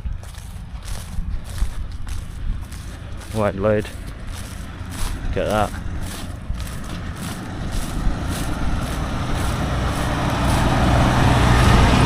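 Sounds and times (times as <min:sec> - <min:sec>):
lorry diesel engine: 0:00.0 - 0:12.0.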